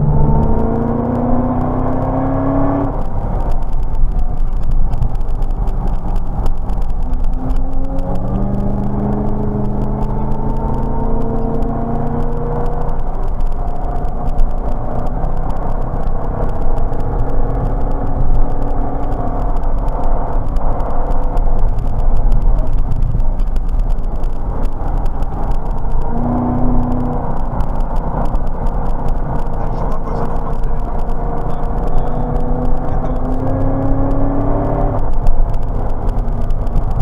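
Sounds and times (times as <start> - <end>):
car engine running hard: 0.0 - 37.0
road and wind noise: 0.0 - 37.0.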